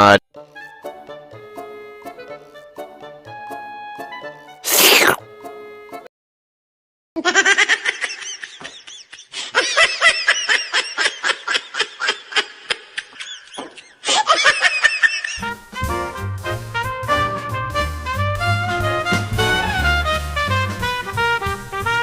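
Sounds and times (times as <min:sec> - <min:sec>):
person laughing hard: 0:07.2 - 0:15.4
jazzy music: 0:15.4 - 0:22.0.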